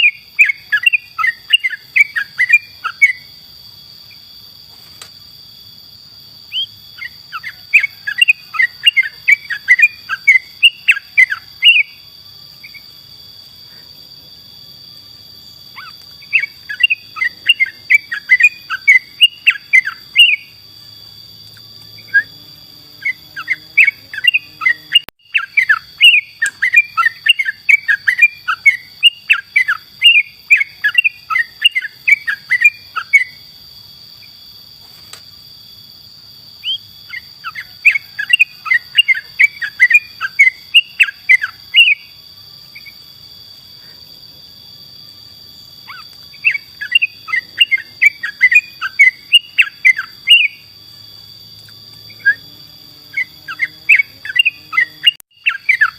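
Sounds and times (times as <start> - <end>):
bird singing bubbling chirps: 0.0 - 3.3, 6.5 - 12.8, 15.7 - 20.6, 23.0 - 33.4, 36.6 - 42.9, 45.8 - 50.7, 53.2 - 55.9.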